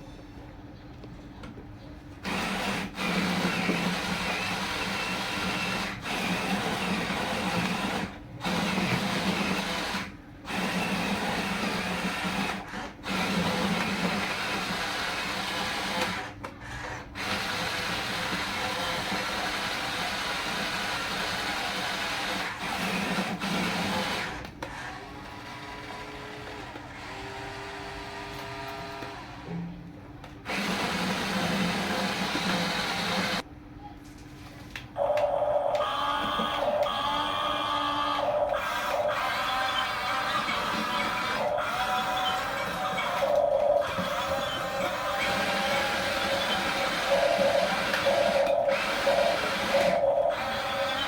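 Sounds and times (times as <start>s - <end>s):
toy electric motors whirring: 2.2s - 29.5s, 30.5s - 33.4s, 35.0s - 51.0s.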